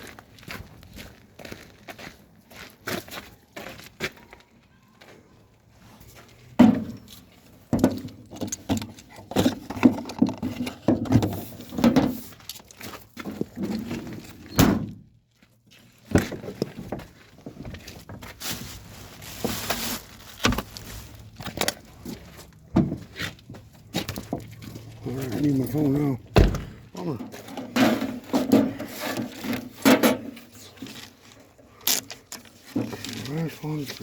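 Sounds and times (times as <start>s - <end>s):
hard objects knocking and rattling: 6.6s - 12.2s.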